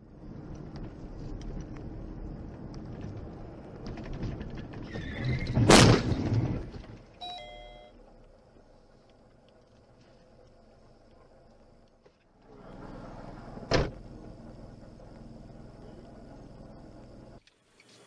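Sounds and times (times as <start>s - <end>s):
road rumble: 0.0s - 18.0s
loud vehicle crash: 3.8s - 7.0s
tyre squeal: 4.8s - 6.2s
short electronic tone: 7.2s - 8.0s.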